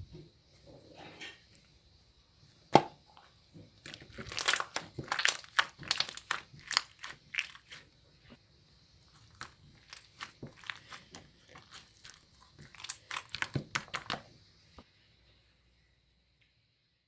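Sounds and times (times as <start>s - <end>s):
crisp crunching: 3.8s - 7.9s, 9.1s - 14.2s.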